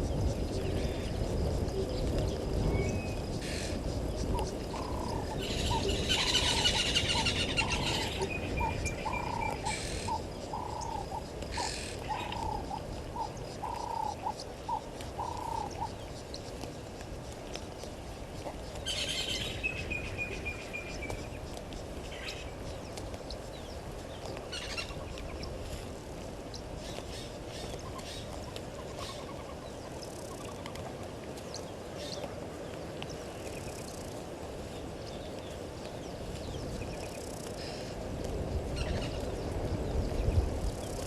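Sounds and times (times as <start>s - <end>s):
birds calling: 0.0s - 25.8s, 26.4s - 34.0s.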